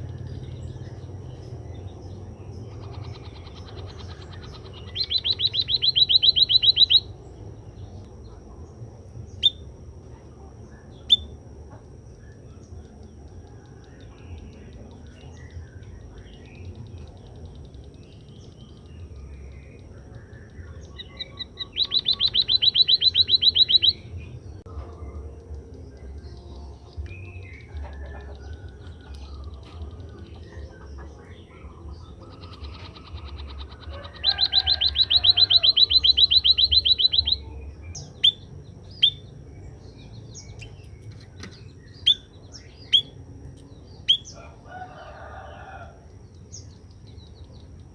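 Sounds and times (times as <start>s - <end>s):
sharp bird chirps: 0.0s - 8.6s, 9.2s - 9.7s, 10.6s - 11.4s, 12.1s - 47.9s
bird trilling: 2.2s - 7.3s, 14.0s - 24.4s, 26.6s - 39.3s, 40.4s - 43.2s, 44.0s - 45.9s.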